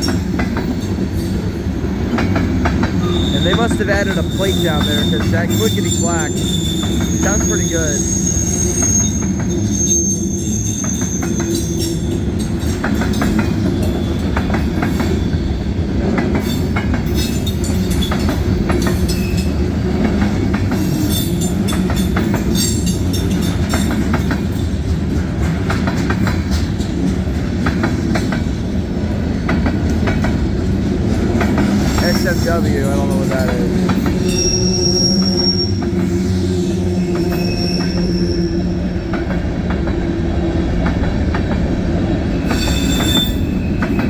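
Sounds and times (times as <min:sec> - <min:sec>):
wheels clacking over rail joint: 0:00.0 - 0:08.1, 0:10.8 - 0:15.3, 0:16.0 - 0:36.2
high wheel squeal: 0:03.0 - 0:12.5, 0:31.8 - 0:39.0, 0:42.3 - 0:44.0.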